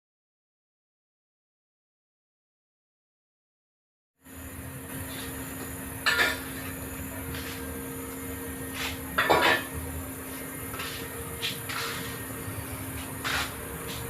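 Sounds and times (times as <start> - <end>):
air pump mechanical hum: 4.2 - 14.0.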